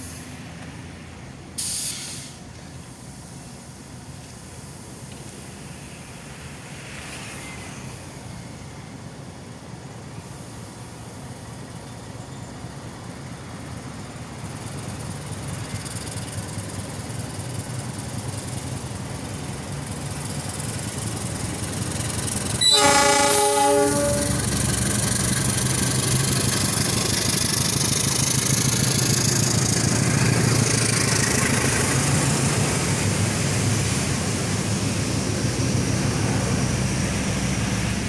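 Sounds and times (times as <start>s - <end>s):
diesel locomotive engine rumble: 0.0s - 38.0s
train horn blast: 22.6s - 24.7s.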